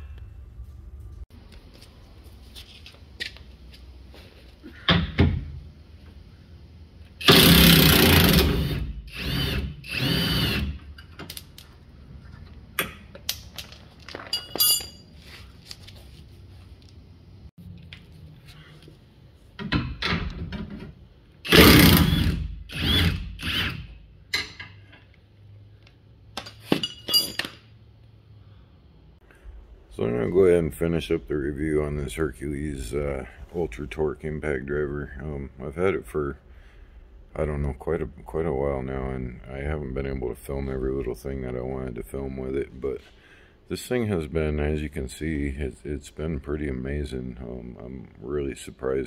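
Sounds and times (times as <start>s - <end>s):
impact wrench hammering: 21.5s - 24.6s.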